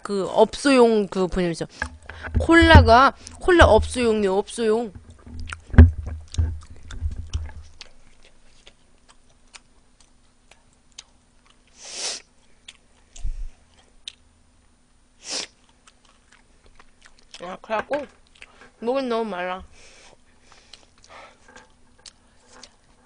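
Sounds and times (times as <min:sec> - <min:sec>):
low thump: 0:02.2 - 0:04.1, 0:04.9 - 0:07.6
crunchy chewing of fried chicken: 0:05.4 - 0:14.2, 0:15.2 - 0:17.6, 0:18.2 - 0:18.8, 0:19.8 - 0:23.0
short hissing noises: 0:11.8 - 0:12.3, 0:15.2 - 0:15.5.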